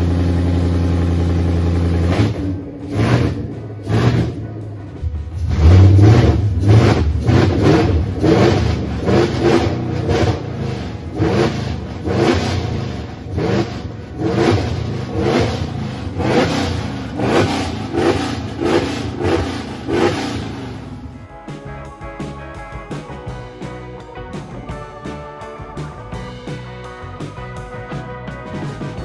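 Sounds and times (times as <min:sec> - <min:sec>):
car engine revving: 0:00.0 - 0:21.3.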